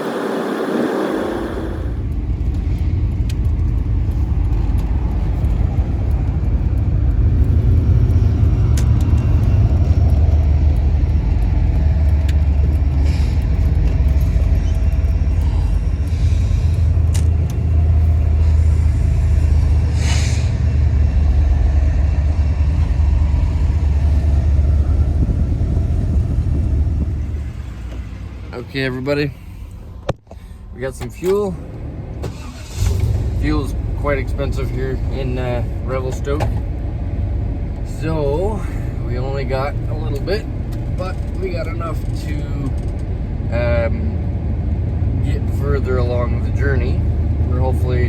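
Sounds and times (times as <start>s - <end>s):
van engine and road rumble: 0.0s - 48.0s
brief hiss: 20.0s - 20.6s.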